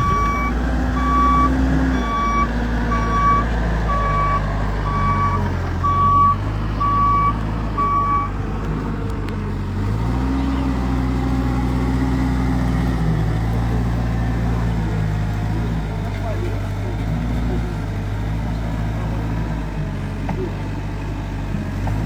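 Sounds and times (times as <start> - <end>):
reversing alarm beeping: 0.0 - 8.3
engine running: 0.0 - 22.0.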